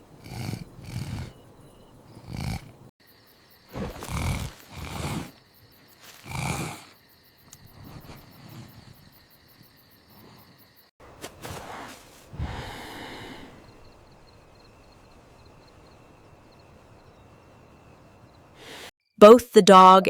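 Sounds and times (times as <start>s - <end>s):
cartoon snoring: 0.0s - 2.9s, 3.7s - 5.4s, 6.0s - 10.6s, 11.7s - 13.8s.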